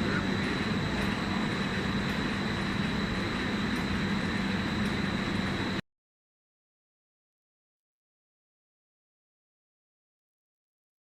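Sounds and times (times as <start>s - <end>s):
high machine whine: 0.0s - 5.8s
industrial machine low hum: 0.0s - 5.8s.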